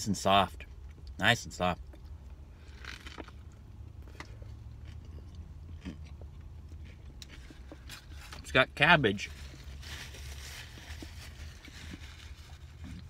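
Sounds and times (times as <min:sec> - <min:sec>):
man biting and chewing: 0:01.9 - 0:08.2.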